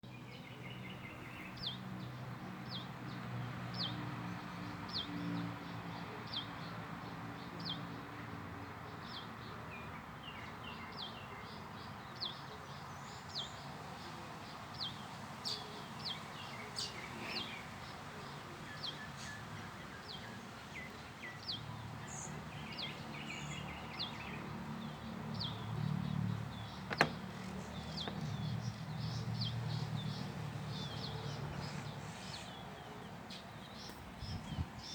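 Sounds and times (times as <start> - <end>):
birds chirping: 8.9 - 34.9.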